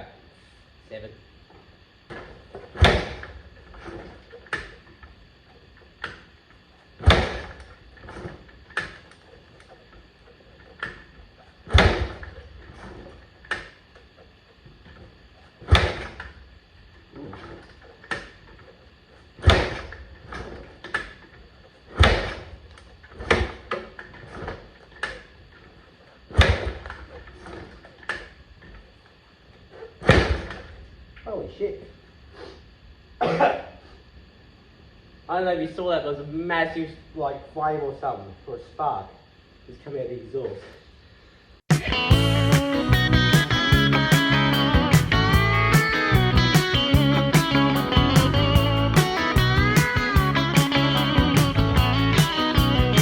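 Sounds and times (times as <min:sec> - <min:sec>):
engine turning over: 0:41.7 - 0:53.0.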